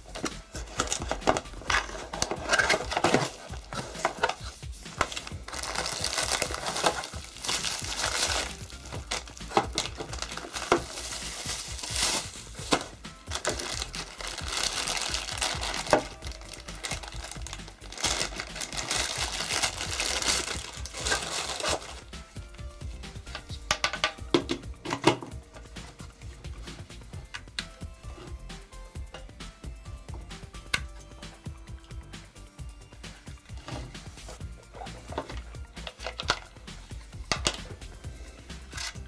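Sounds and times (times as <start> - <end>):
background music: 0.0 - 39.0
packaging crinkling and rustling: 0.1 - 22.2.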